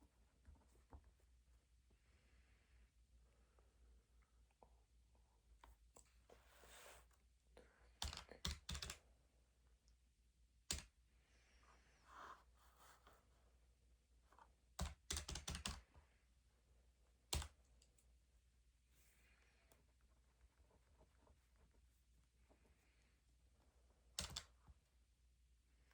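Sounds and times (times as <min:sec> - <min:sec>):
faint soft rustling: 0:04.3 - 0:07.4, 0:11.3 - 0:14.7, 0:18.8 - 0:25.0.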